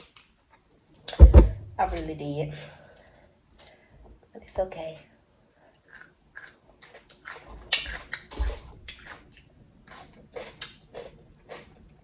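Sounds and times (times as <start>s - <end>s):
crunchy chewing: 5.7s - 12.0s.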